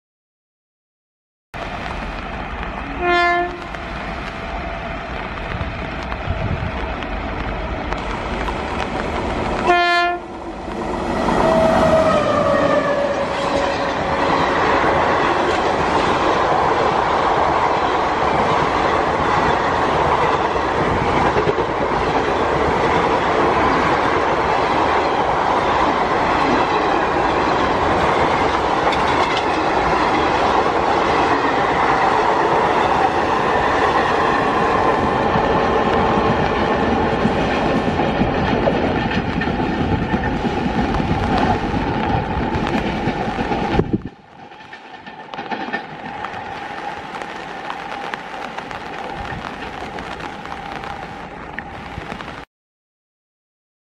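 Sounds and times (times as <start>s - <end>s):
express train rumbling past: 1.6s - 52.4s
locomotive horn blast: 2.9s - 3.8s, 9.6s - 10.3s
wheel clatter over rail joints: 36.2s - 47.6s.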